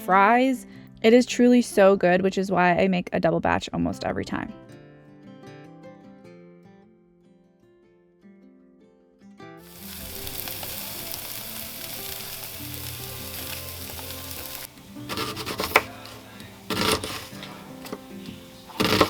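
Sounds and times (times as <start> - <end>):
quiet background music: 0.0 - 19.0
food sizzling in a frying pan: 9.6 - 19.0.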